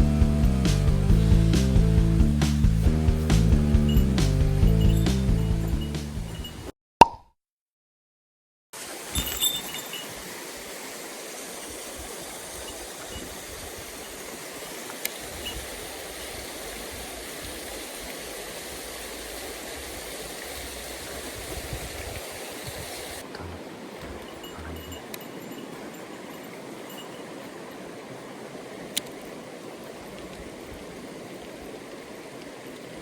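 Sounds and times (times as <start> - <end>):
stream water flowing: 8.8 - 33.0.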